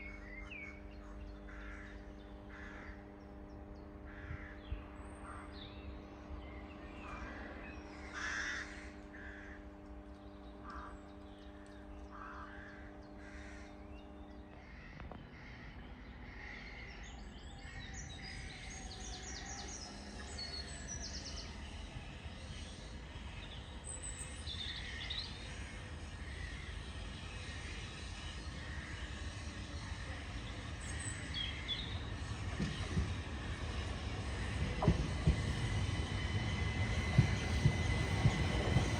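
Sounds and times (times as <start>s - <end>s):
steady low hum: 0.0s - 38.9s
crows cawing: 1.5s - 3.1s, 4.1s - 4.6s, 7.0s - 9.7s, 10.6s - 11.0s, 12.1s - 13.8s, 14.6s - 16.9s.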